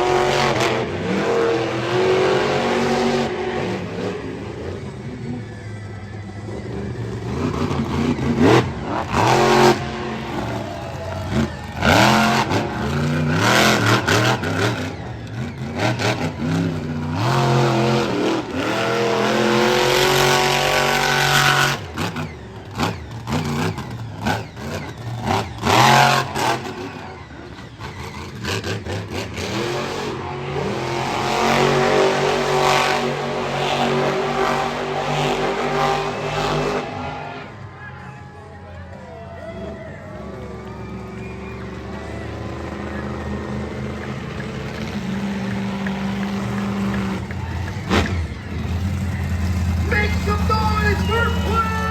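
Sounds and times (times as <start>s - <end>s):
monster truck engine revving: 0.0s - 51.9s.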